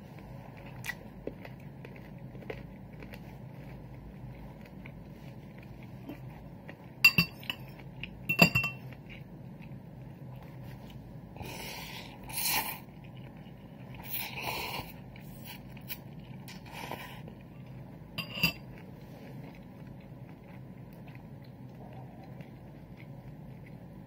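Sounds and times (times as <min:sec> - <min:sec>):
metal utensil clinking on dish: 0:08.3 - 0:08.8, 0:18.2 - 0:18.6
slurping: 0:11.4 - 0:12.9.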